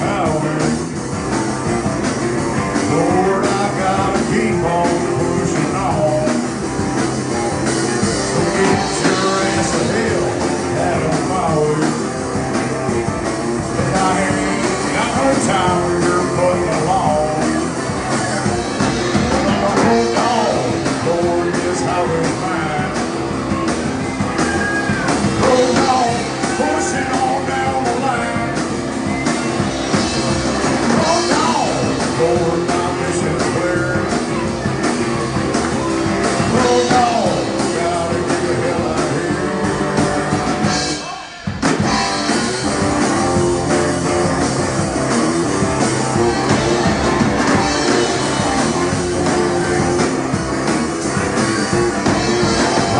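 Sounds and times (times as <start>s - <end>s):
person singing: 0.0s - 0.9s, 2.8s - 6.5s, 7.2s - 12.2s, 13.8s - 18.5s, 19.2s - 23.6s, 24.2s - 28.6s, 31.0s - 34.9s, 35.5s - 42.4s
live rock band playing: 0.0s - 52.9s.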